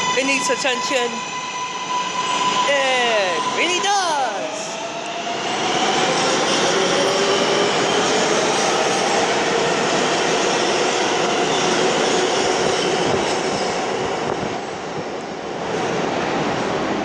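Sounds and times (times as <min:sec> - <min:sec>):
train whining tones: 0:00.0 - 0:09.4
subway train rumbling on rails: 0:00.0 - 0:17.0.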